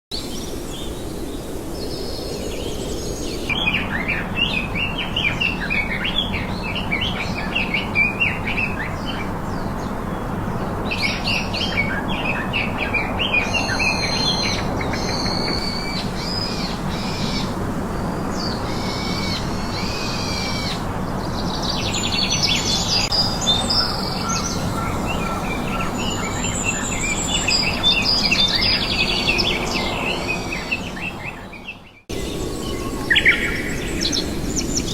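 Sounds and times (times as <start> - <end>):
birds chirping and singing: 1.8 - 34.9.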